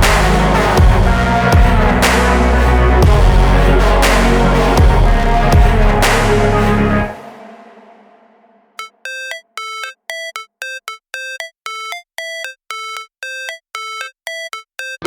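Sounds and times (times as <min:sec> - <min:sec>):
synthesized melody of clipped notes: 0:08.8 - 0:15.0.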